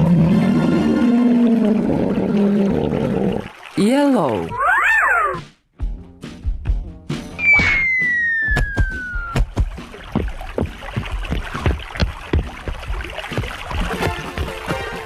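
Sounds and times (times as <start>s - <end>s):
descending cartoon whistle: 7.4s - 9.4s
knocks and thumps: 8.5s - 15.0s.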